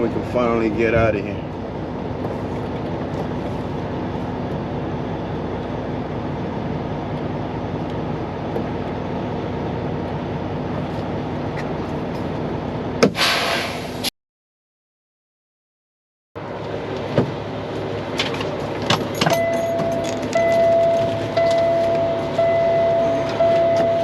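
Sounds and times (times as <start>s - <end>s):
diesel engine idling: 0.0s - 14.1s, 16.4s - 24.0s
air hissing: 13.0s - 14.1s.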